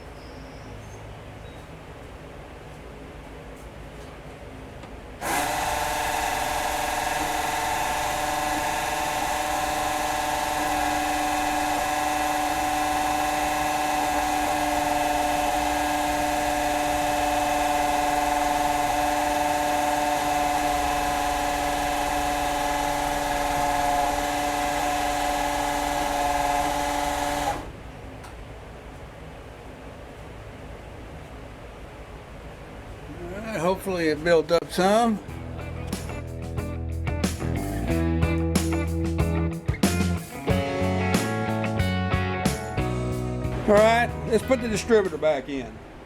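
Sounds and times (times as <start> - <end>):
electric drill whining: 5.2 - 27.8.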